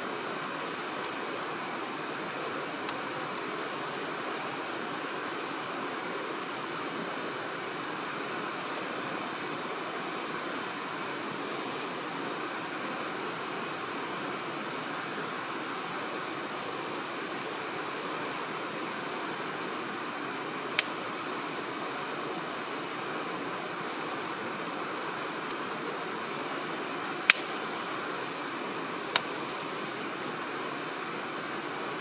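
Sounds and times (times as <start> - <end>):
wood fire hissing: 0.0 - 32.0
fire crackling pops: 20.6 - 24.2, 27.1 - 30.6, 31.5 - 32.0.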